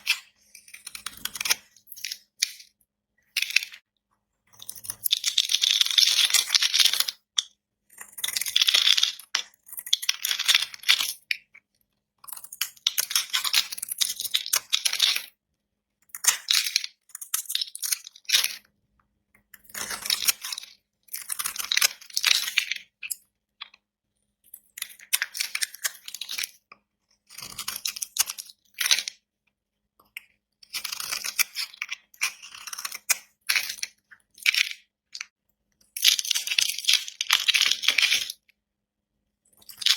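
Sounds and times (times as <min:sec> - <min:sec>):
knife scraping through soap: 0:30.6 - 0:34.6.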